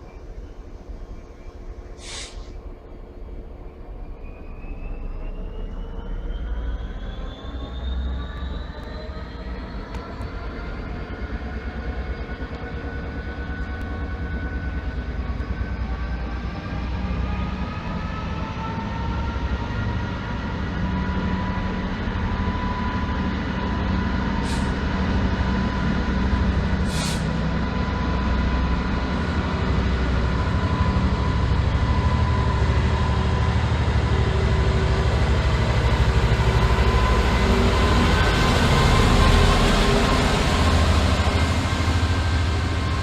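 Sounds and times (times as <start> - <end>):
short hisses: 2.0 - 2.6, 24.4 - 24.8, 26.9 - 27.3.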